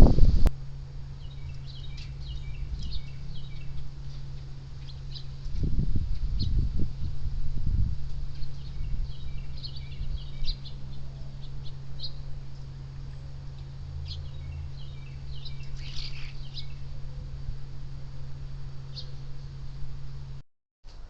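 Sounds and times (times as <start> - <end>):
steady low hum: 0.0 - 21.0
birds chirping: 1.1 - 7.1, 8.3 - 17.5, 18.8 - 19.6.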